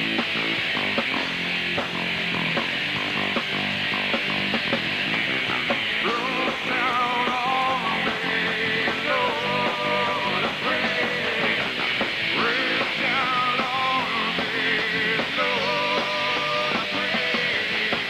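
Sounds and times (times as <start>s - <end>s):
drums: 0.0s - 18.0s
electric guitar: 0.0s - 18.0s
person singing: 6.0s - 18.0s.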